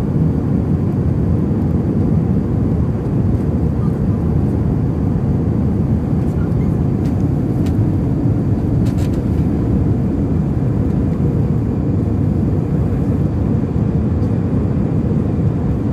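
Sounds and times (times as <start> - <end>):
airliner cabin rumble: 0.0 - 15.9.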